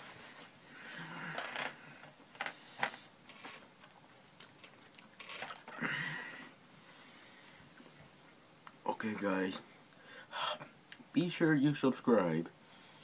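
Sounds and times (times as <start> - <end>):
person chewing food: 3.3 - 5.8.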